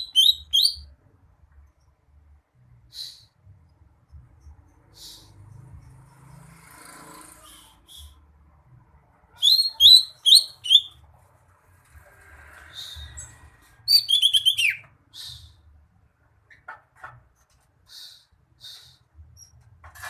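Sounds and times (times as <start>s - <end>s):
soft bird calls: 17.8s - 19.6s.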